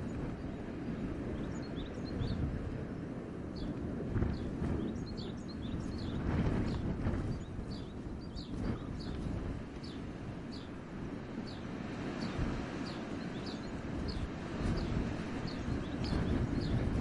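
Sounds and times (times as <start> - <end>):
wind gusting through forest: 0.0 - 17.0
wind rumble on microphone: 0.0 - 17.0
small bird chirping: 11.5 - 16.8.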